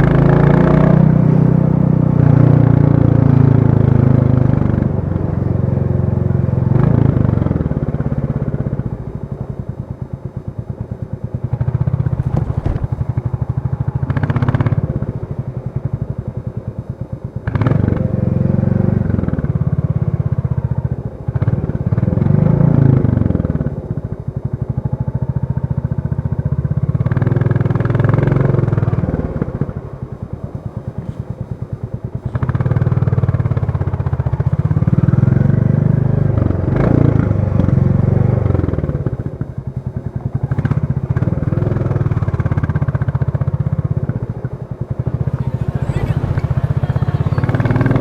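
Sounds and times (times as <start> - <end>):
motorcycle engine revving: 11.4 - 14.8, 27.0 - 48.0.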